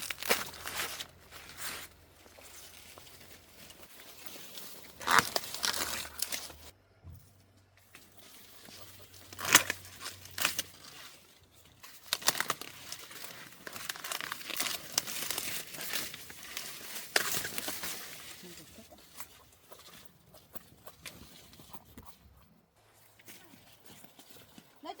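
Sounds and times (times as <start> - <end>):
sharp leaf rips: 0.0 - 6.7, 8.1 - 20.0
dry corn leaves rustling: 0.0 - 6.8, 7.8 - 21.8, 22.8 - 25.0.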